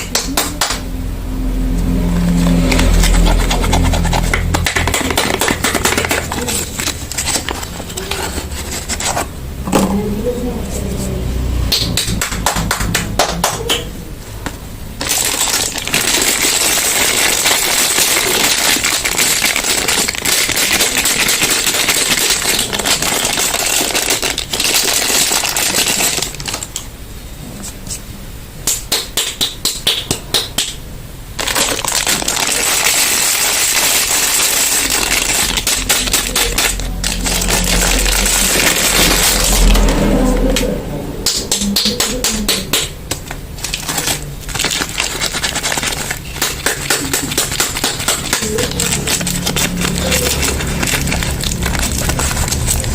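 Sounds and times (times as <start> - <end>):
packaging crinkling: 2.5 - 9.4, 15.0 - 26.9, 31.4 - 40.2, 43.1 - 52.9.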